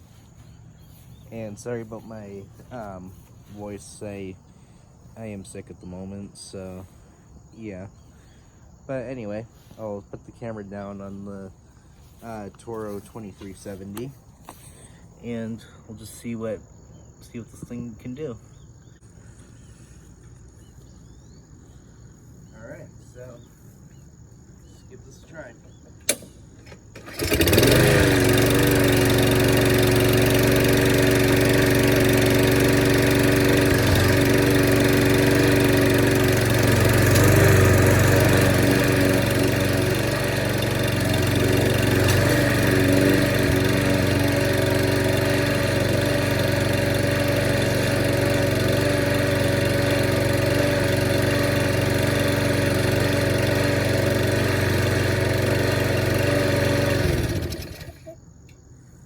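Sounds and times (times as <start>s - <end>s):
mower engine running: 0.0s - 4.3s, 12.0s - 14.8s, 26.1s - 58.2s
recoil pull cord: 41.4s - 42.8s.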